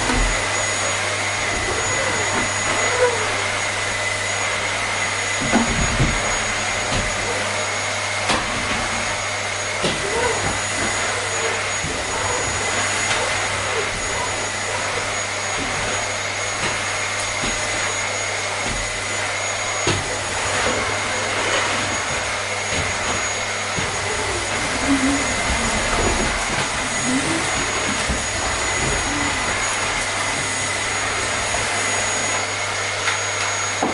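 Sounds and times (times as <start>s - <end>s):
vacuum cleaner running: 0.0s - 33.9s.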